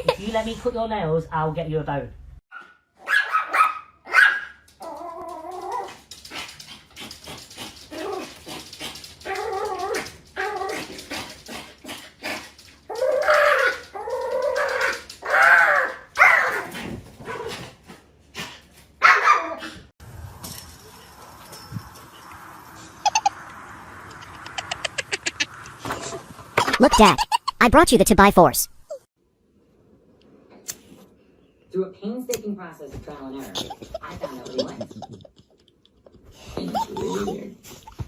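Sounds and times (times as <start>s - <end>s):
dog whining and yelping: 12.9s - 17.6s, 19.0s - 19.8s.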